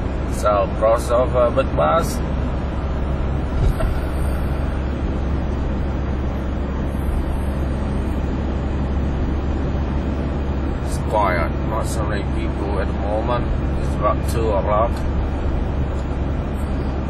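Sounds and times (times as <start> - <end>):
car road and engine rumble: 0.0 - 17.0
brief thump: 3.6 - 4.1.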